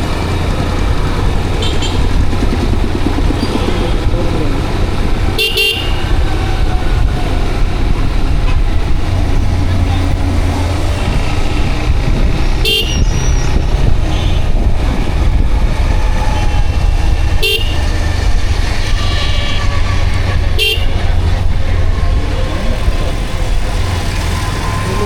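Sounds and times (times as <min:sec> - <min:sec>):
motorcycle engine rumble: 0:00.0 - 0:25.0
wind on helmet: 0:00.1 - 0:23.7
vehicle horn beeps: 0:05.4 - 0:06.2, 0:12.6 - 0:13.5, 0:17.4 - 0:17.9, 0:18.9 - 0:21.1.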